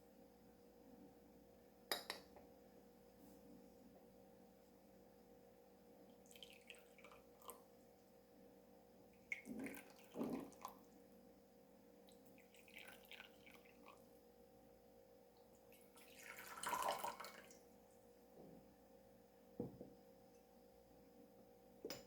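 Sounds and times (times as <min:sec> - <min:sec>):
water pouring into teaware: 0:06.2 - 0:07.7, 0:09.3 - 0:11.0, 0:12.1 - 0:14.1, 0:15.7 - 0:17.6.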